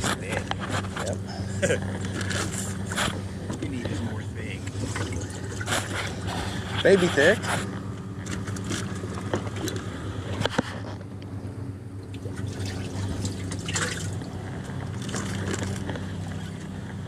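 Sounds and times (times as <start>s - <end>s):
steady low hum: 0.0s - 17.0s
water splashing and dripping: 12.2s - 14.3s.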